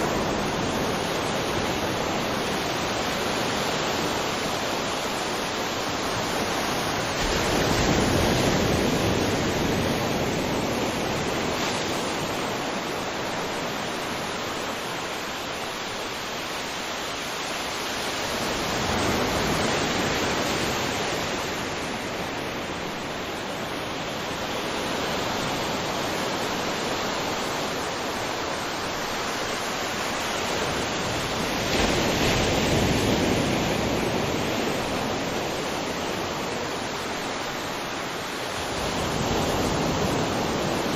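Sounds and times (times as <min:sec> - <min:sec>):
ocean waves breaking on beach: 0:00.0 - 0:40.9.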